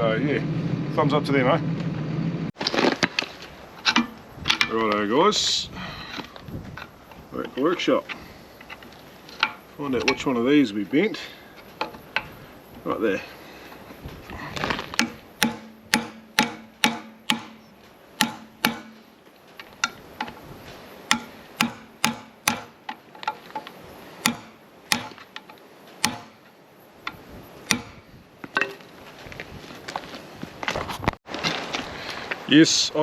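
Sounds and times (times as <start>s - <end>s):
hand tools clicking on metal: 21.1s - 26.3s.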